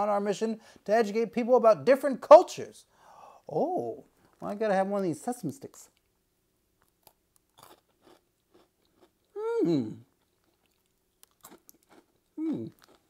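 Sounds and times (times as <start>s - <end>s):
crunching breadstick: 6.8s - 9.4s, 10.0s - 13.0s.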